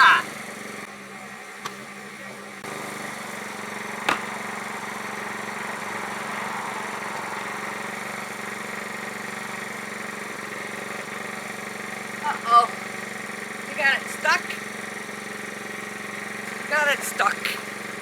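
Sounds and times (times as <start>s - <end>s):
generator engine running: 0.0s - 18.0s
axe striking log: 4.0s - 4.4s.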